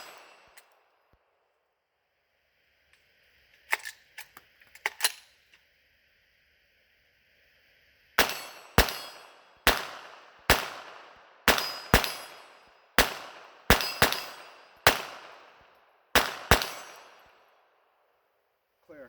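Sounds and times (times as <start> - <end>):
rifle shots with ringing echo: 0.0 - 0.7, 8.2 - 17.6.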